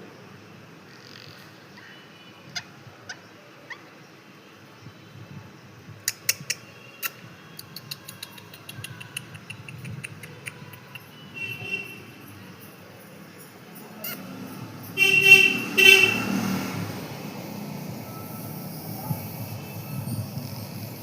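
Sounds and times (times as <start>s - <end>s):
parrot chirping: 0.9s - 4.0s, 14.0s - 14.4s
parrot clicking: 6.1s - 11.1s.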